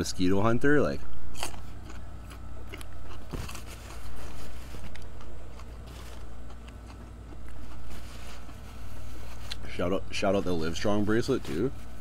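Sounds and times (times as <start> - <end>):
low steady rumble: 0.0 - 12.0
chewing crispy food: 1.3 - 9.8.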